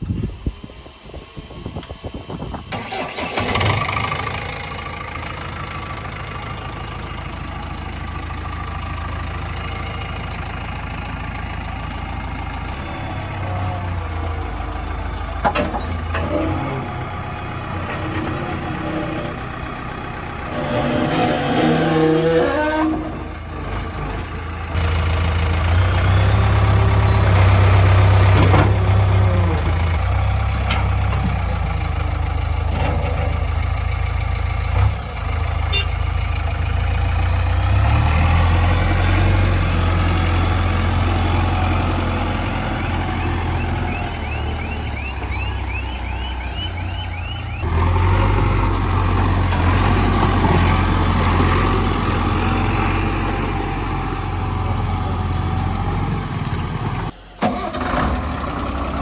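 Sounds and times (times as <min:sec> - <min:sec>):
backhoe diesel engine running: 0:00.0 - 0:59.0
short high squeaks: 0:20.4 - 0:23.7.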